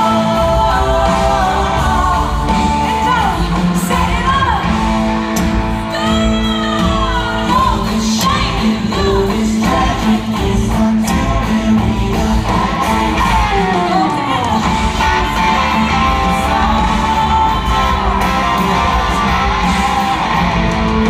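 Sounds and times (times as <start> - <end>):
woman singing: 0.0 - 4.9, 5.7 - 20.4
live country-pop band: 0.0 - 21.0
crowd shouting: 12.8 - 21.0.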